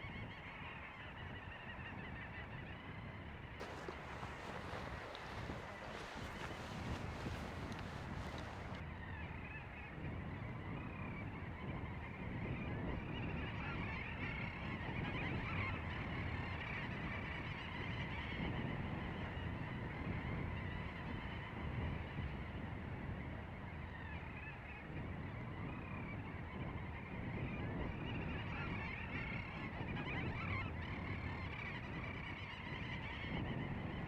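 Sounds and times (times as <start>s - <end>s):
seabird colony chattering: 3.6s - 8.8s.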